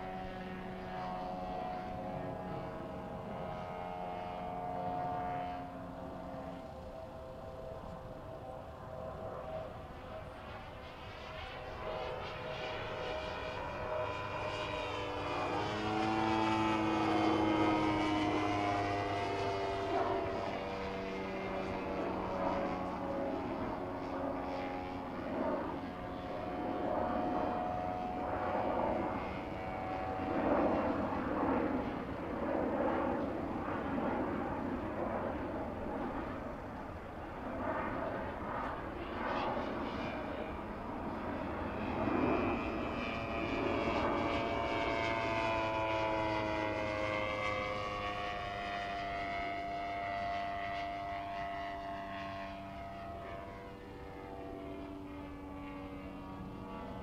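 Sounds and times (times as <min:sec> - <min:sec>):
model airplane engine and propeller: 0:00.0 - 0:57.0.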